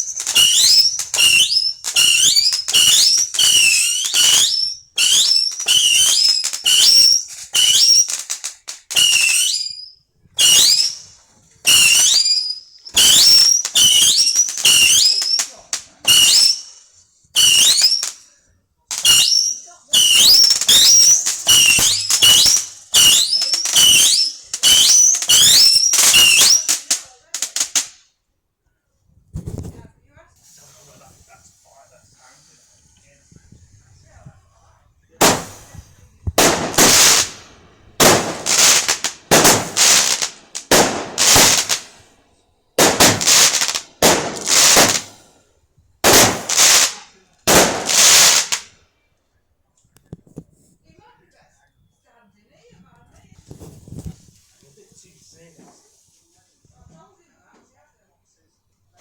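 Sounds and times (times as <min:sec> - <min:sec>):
steady hiss: 0:00.0 - 0:19.0, 0:30.4 - 0:42.2, 0:42.8 - 0:48.8
whistling fireworks: 0:00.0 - 0:28.0, 0:30.4 - 0:42.2, 0:42.8 - 0:45.4, 0:46.0 - 0:48.8, 0:53.5 - 0:54.6.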